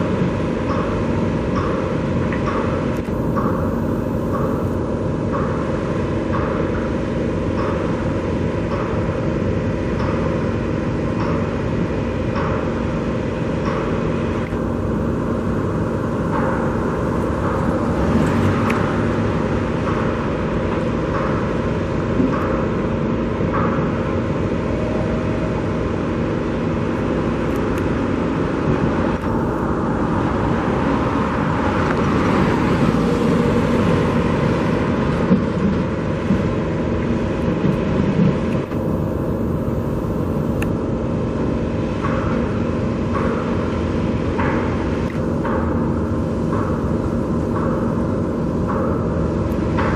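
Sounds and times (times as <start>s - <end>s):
road traffic passing: 14.5s - 21.6s, 27.3s - 40.7s.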